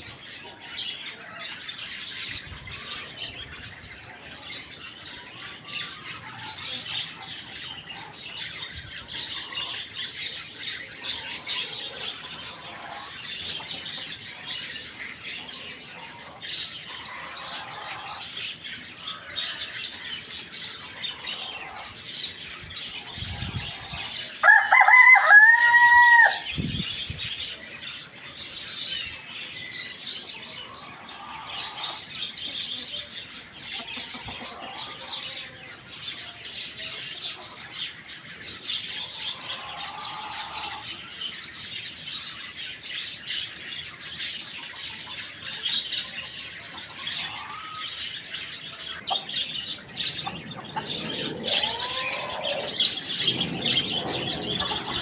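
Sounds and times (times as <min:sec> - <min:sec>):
small birds chirping: 0:00.0 - 0:55.0
rooster crowing: 0:24.4 - 0:26.5, 0:50.7 - 0:53.2.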